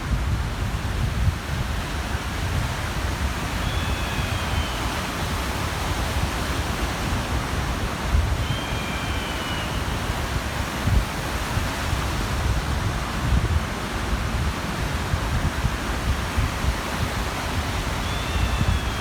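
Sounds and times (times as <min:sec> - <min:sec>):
small waves washing on shore: 0:00.0 - 0:19.0
wind buffeting microphone: 0:00.0 - 0:19.0
faint high calls: 0:03.5 - 0:05.5, 0:08.3 - 0:10.5, 0:17.8 - 0:19.0.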